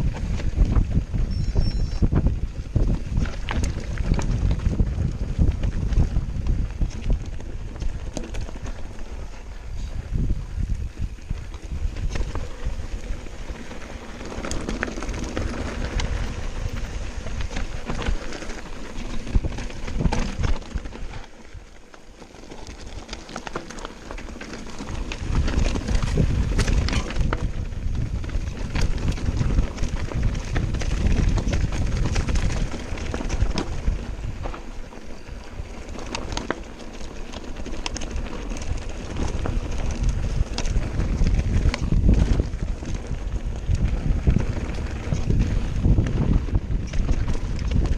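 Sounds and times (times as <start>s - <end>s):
bike knocking and rattling: 0.0s - 47.9s
wind rumble on microphone: 0.0s - 47.9s
tyres crunching over stones: 11.2s - 47.9s.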